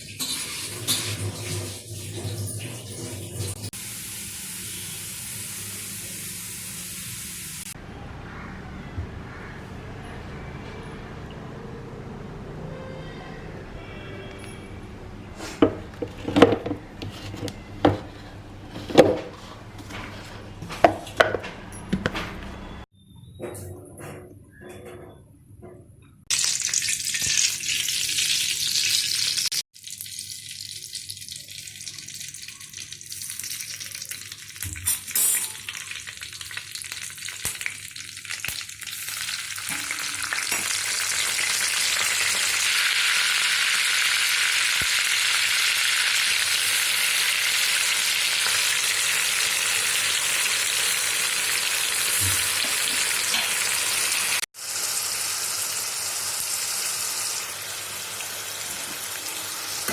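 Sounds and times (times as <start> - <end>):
food sizzling in hot oil: 0.0 - 7.8, 26.3 - 59.9.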